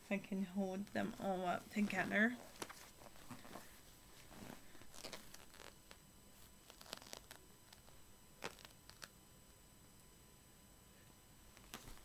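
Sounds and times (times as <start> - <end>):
yarn rustling: 0.8 - 9.1.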